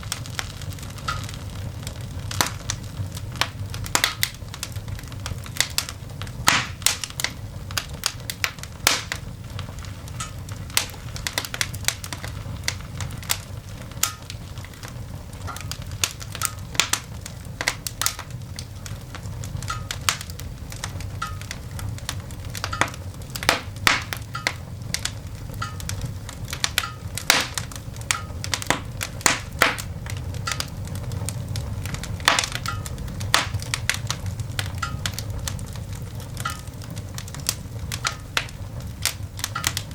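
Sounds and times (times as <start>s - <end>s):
coal fire crackling and popping: 0.0s - 39.9s
fire low rumble: 0.0s - 39.9s.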